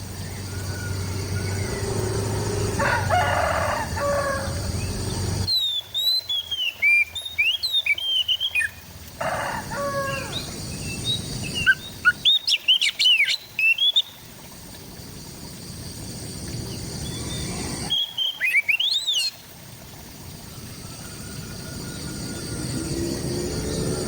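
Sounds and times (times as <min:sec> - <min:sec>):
bird whistled song: 0:04.8 - 0:08.8, 0:10.3 - 0:14.2, 0:17.1 - 0:19.4.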